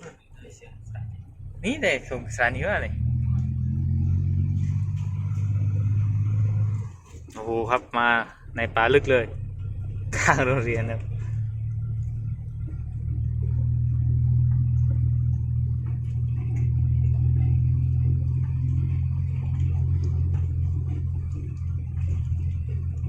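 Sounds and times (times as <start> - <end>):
diesel truck engine droning: 0.0 - 23.0
faint rattles: 4.4 - 23.0.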